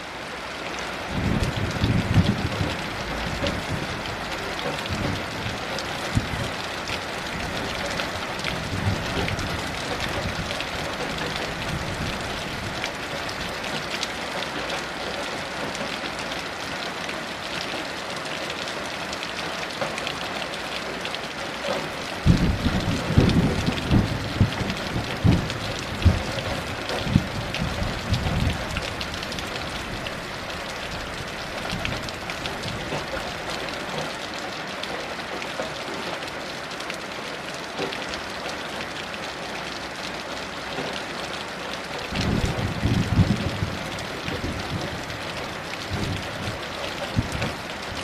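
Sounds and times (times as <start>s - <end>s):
heavy rain falling: 0.0s - 48.0s
rolling thunder rumble: 1.1s - 6.6s, 22.2s - 30.3s, 42.1s - 48.0s.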